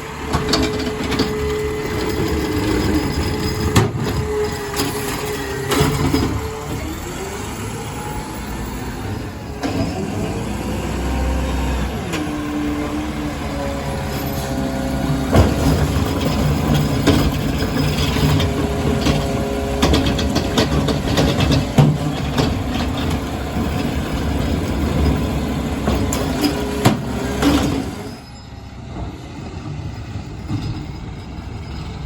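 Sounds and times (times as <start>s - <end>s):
garbage truck engine revving: 0.0s - 28.2s.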